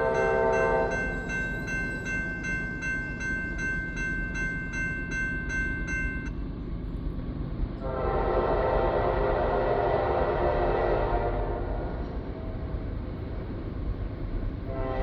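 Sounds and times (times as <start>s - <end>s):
locomotive horn blast: 0.0s - 0.9s, 7.8s - 12.0s, 14.7s - 15.0s
crossing bell ringing: 0.0s - 6.6s
freight train rumble: 0.0s - 15.0s.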